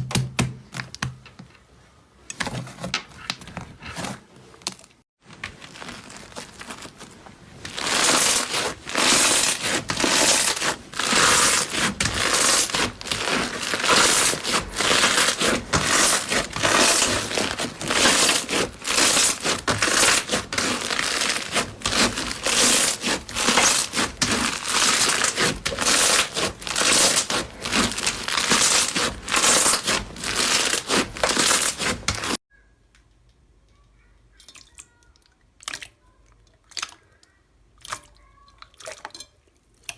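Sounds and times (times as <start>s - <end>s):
slime crackling and popping: 7.7s - 32.4s.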